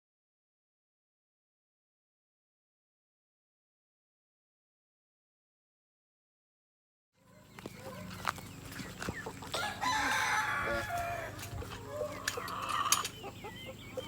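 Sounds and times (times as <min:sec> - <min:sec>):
chickens clucking and squawking: 0:07.2 - 0:14.0
rooster crowing: 0:09.4 - 0:13.0.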